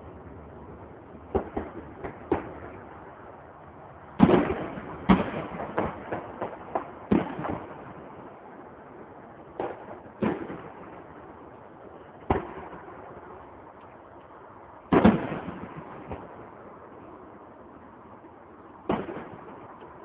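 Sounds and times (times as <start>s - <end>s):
fireworks bangs: 1.3s - 2.8s, 4.2s - 8.1s, 9.5s - 11.1s, 12.2s - 13.4s, 14.9s - 16.6s, 18.8s - 20.0s.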